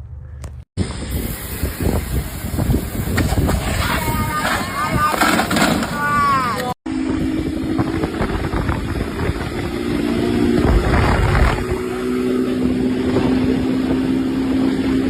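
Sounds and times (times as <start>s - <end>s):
engine running: 6.9s - 15.0s.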